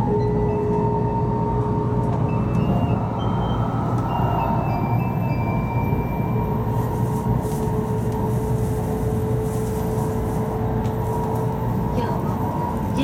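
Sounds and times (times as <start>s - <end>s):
train cabin low rumble: 0.0s - 13.0s.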